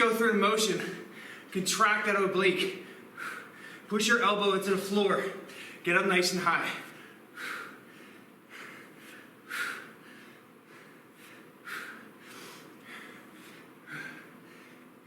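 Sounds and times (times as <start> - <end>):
man breathing hard: 0.9 - 1.5, 2.8 - 3.9, 5.3 - 5.8, 6.6 - 15.0.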